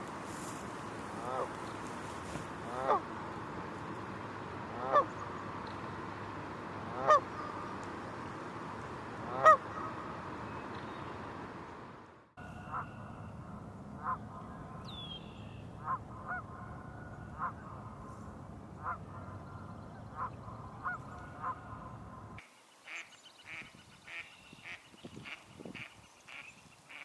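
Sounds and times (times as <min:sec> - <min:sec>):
geese honking: 0:00.0 - 0:03.1, 0:04.7 - 0:05.4, 0:06.9 - 0:07.9, 0:09.2 - 0:10.2, 0:12.4 - 0:13.2.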